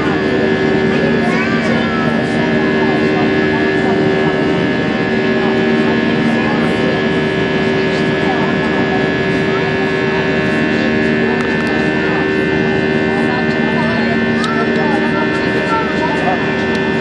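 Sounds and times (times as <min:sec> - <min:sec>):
jet engines from inside cabin: 0:00.0 - 0:17.0.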